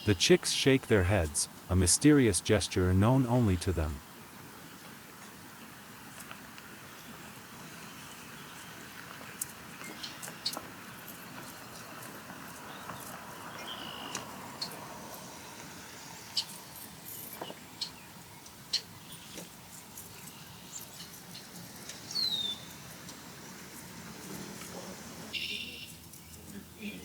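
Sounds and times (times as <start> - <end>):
outdoor hiss: 0.0 - 9.0.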